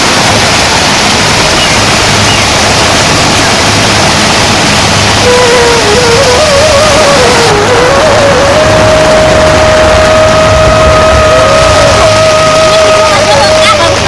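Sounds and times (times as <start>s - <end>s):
heavy rain pouring: 0.0s - 14.0s
faint wavering melody: 3.2s - 14.0s.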